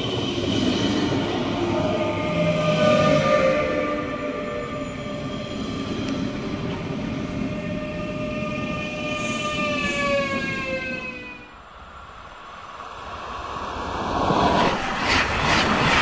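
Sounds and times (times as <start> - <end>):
train drivetrain whine: 0.0 - 12.2.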